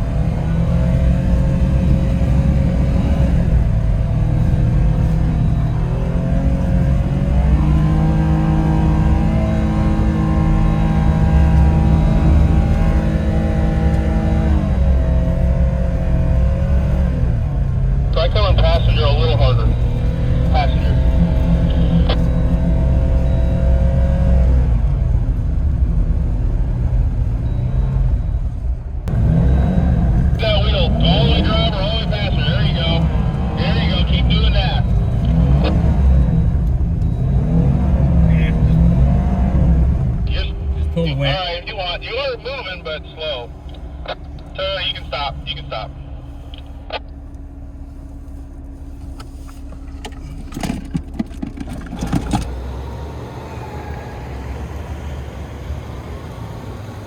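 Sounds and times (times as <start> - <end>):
truck engine revving: 0.0 - 47.9, 48.5 - 57.0
steady whine: 18.1 - 22.8, 29.8 - 51.0.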